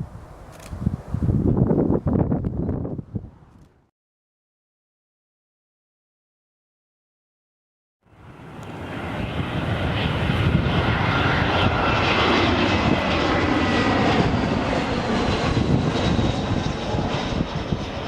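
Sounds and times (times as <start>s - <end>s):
jet aircraft passing close: 8.0s - 18.0s.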